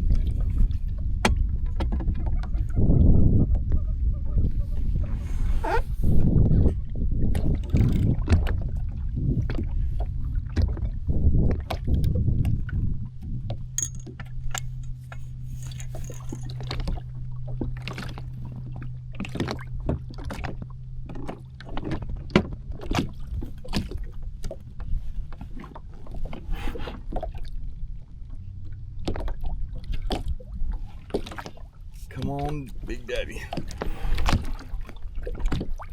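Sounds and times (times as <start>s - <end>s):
water sloshing and splashing: 29.1s - 32.9s, 33.5s - 35.9s.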